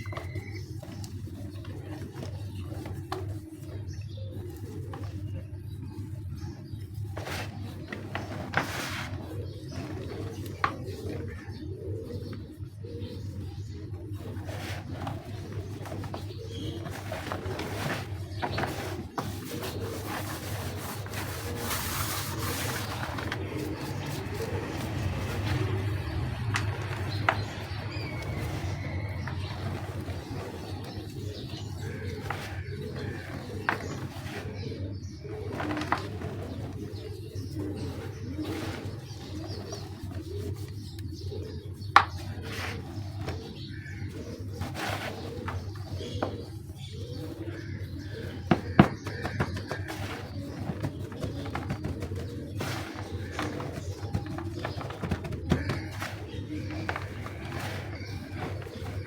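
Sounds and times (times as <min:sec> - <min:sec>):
cement gritty grinding: 0:06.4 - 0:59.0.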